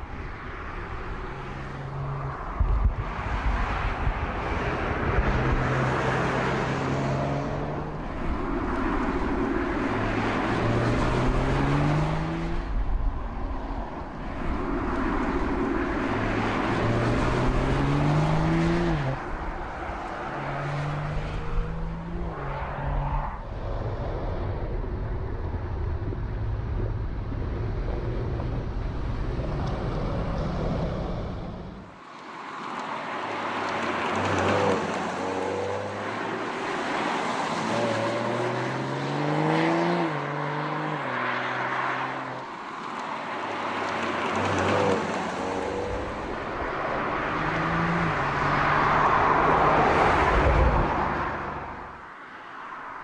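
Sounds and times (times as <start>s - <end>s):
wind and tyre noise: 0.0s - 53.0s
car engine accelerating through gears: 16.3s - 19.2s, 20.3s - 23.4s.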